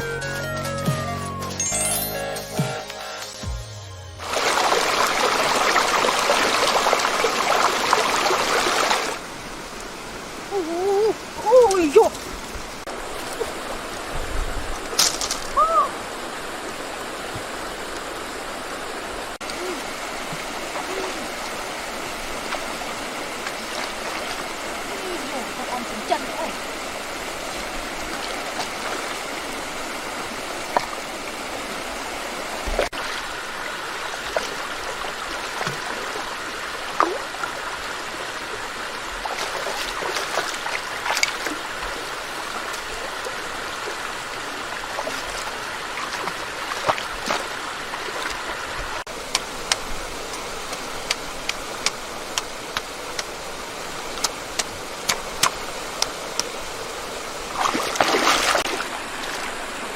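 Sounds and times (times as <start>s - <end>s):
stream water rushing: 1.1s - 59.9s
water splashes: 4.2s - 59.9s.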